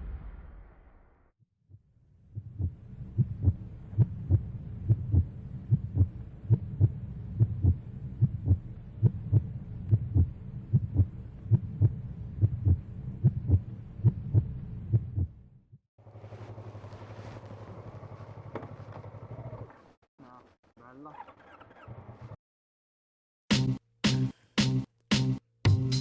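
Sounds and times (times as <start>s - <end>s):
heartbeat pulse: 1.7s - 15.4s.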